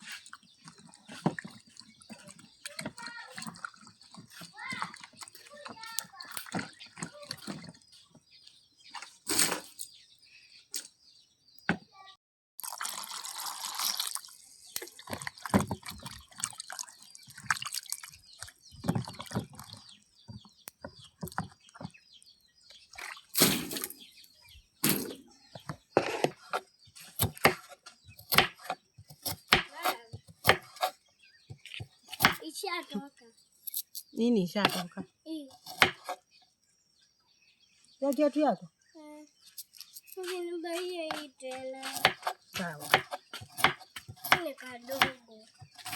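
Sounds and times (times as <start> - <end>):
water splashing and dripping: 0.0 - 7.8, 12.6 - 20.1, 22.8 - 24.0
water pouring: 0.2 - 7.7, 12.6 - 19.8.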